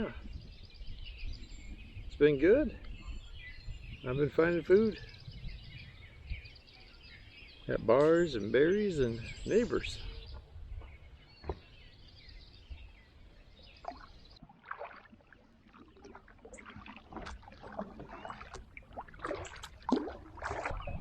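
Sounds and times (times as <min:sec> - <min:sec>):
paddle splashing in water: 0:13.8 - 0:21.0
water dripping: 0:13.8 - 0:21.0.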